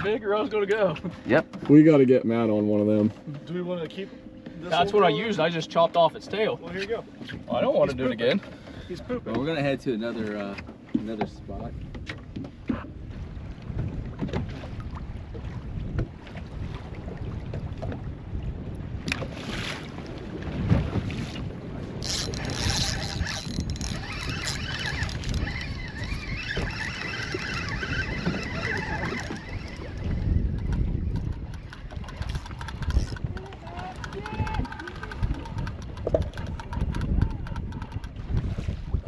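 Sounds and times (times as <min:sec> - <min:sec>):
motorboat engine: 0:00.0 - 0:39.0
wind buffeting microphone: 0:06.2 - 0:39.0
hull noise: 0:20.7 - 0:38.2.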